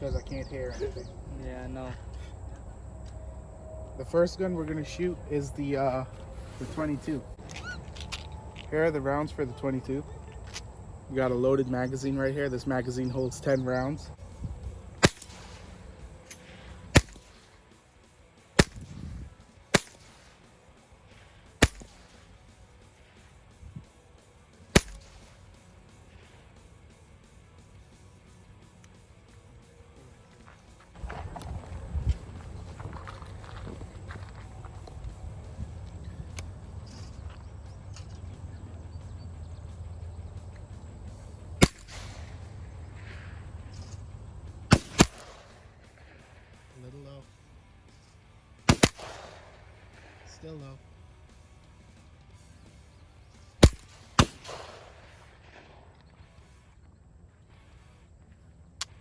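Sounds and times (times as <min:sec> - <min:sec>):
rifle shots: 0:14.6 - 0:17.6, 0:18.6 - 0:22.7, 0:24.7 - 0:26.3, 0:41.5 - 0:46.8, 0:48.6 - 0:50.6, 0:53.4 - 0:56.2.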